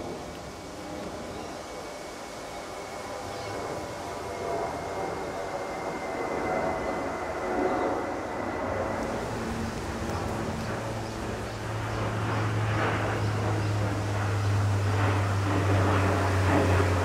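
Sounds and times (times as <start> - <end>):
distant vehicle passing: 9.0 - 17.0.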